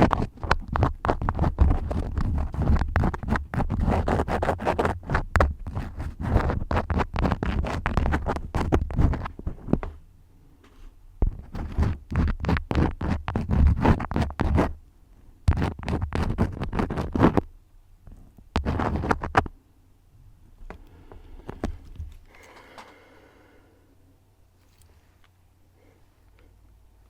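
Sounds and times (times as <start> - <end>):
crayons scribbling: 0.0 - 9.3, 11.4 - 14.8, 15.5 - 17.4, 18.6 - 19.5.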